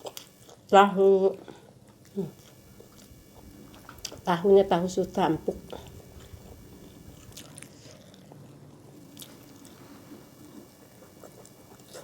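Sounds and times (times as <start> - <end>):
person chewing food: 0.0 - 0.7, 1.4 - 4.4, 5.5 - 12.0.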